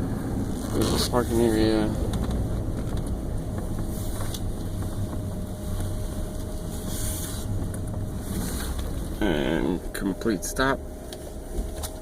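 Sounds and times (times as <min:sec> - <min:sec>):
road noise: 0:00.0 - 0:12.0
truck engine rumble: 0:00.0 - 0:12.0.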